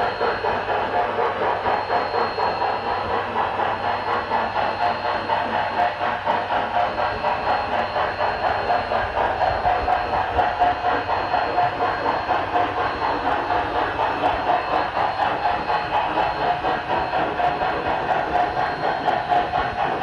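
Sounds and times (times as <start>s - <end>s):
model steam locomotive chuffing: 0.0s - 20.0s.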